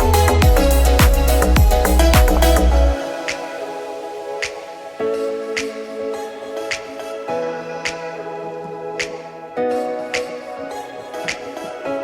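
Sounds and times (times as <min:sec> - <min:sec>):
light snap-like beat: 0:00.0 - 0:02.7.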